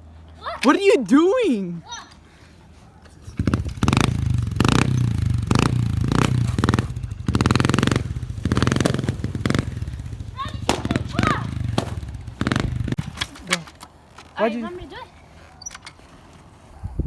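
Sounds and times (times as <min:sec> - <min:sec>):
dirt bike engine revving: 0:03.2 - 0:13.2.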